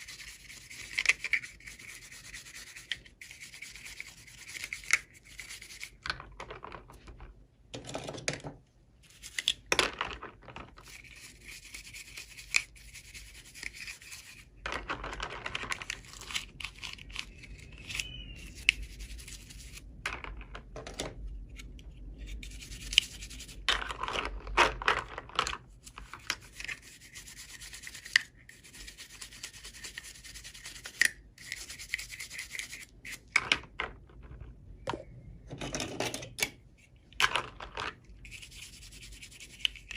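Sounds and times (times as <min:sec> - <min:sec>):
hands rubbing plastic packaging: 0:00.0 - 0:06.3, 0:10.6 - 0:20.0, 0:38.2 - 0:39.9
plastic pieces clicking: 0:14.6 - 0:18.3, 0:23.7 - 0:26.4, 0:37.1 - 0:38.1.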